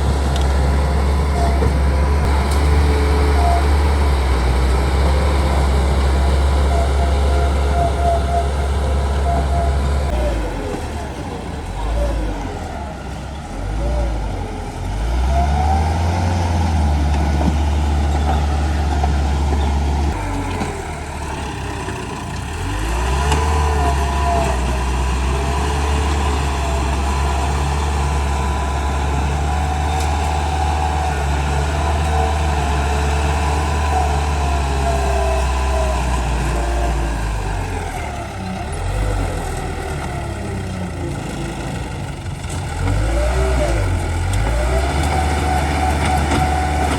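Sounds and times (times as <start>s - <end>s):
wavering squeals: 0.0s - 11.1s, 22.6s - 39.4s
bulldozer diesel engine under load: 0.0s - 46.9s.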